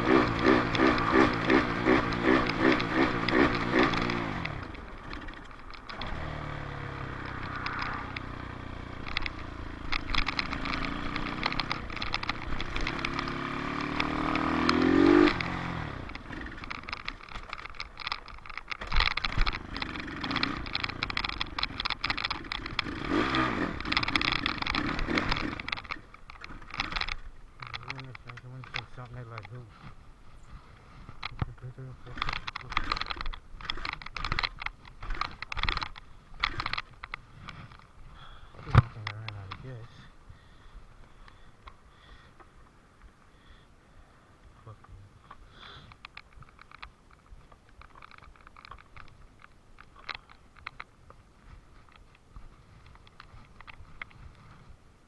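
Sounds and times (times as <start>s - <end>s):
dirt bike engine running: 0.0s - 42.5s.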